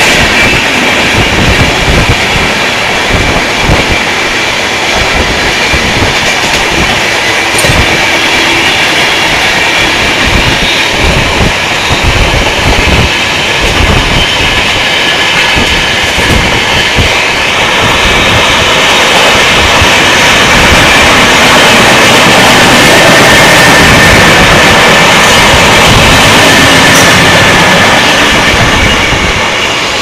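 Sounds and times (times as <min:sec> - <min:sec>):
train wheel and rail noise: 0:00.0 - 0:30.0.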